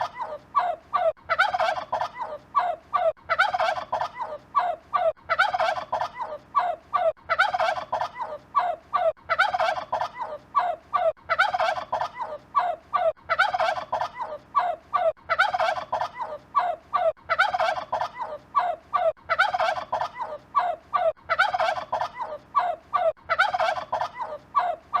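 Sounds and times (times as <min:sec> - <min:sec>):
turkey gobbling: 0:01.0 - 0:02.4, 0:03.0 - 0:04.4, 0:05.0 - 0:06.4, 0:07.0 - 0:08.4, 0:09.3 - 0:10.4, 0:11.3 - 0:12.4, 0:13.3 - 0:14.4, 0:15.0 - 0:16.4, 0:17.0 - 0:18.4, 0:19.3 - 0:20.4, 0:21.0 - 0:25.0.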